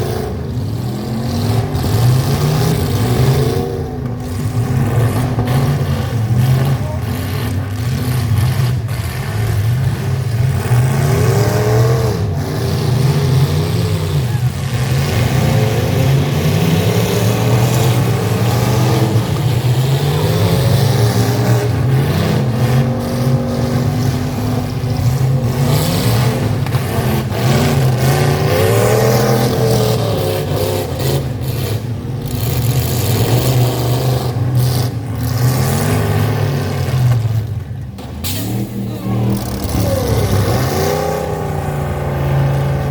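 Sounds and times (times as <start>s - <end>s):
truck engines revving: 0.0s - 42.9s.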